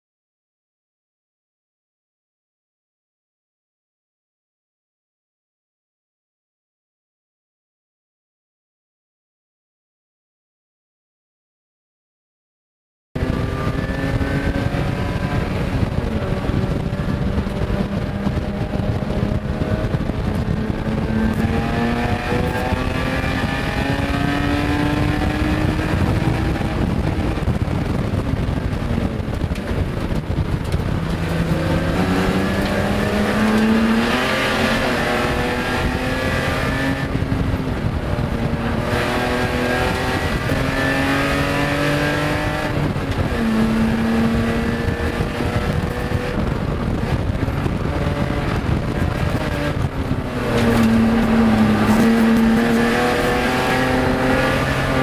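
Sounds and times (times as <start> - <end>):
race car engine accelerating: 13.2 - 55.0.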